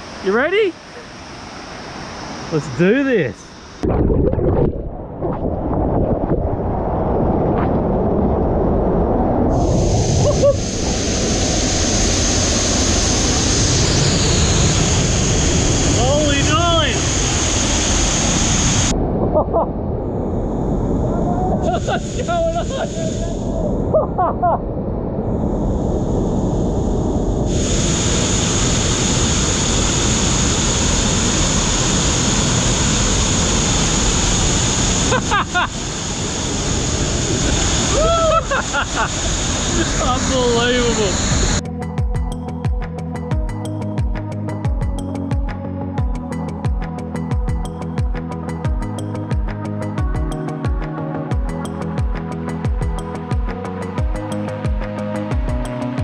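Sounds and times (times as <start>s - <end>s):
high hiss: 0.0s - 3.8s, 9.5s - 18.9s, 21.6s - 23.6s, 25.4s - 41.6s
wind buffeting microphone: 3.8s - 41.6s
waterfall roaring: 9.8s - 18.9s, 27.5s - 41.6s.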